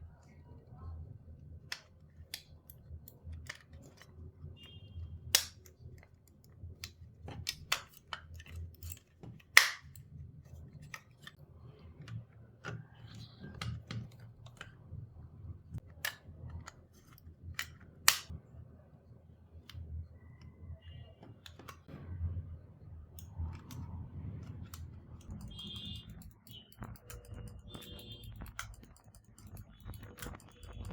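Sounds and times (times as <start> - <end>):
plastic parts clicking: 1.7 - 11.4, 12.0 - 14.8, 15.8 - 18.4, 21.3 - 21.9, 23.2 - 30.9.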